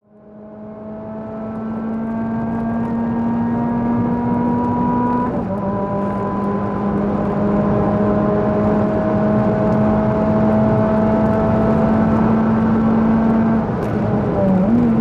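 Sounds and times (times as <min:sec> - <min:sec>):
car engine at high revs: 0:00.0 - 0:15.0.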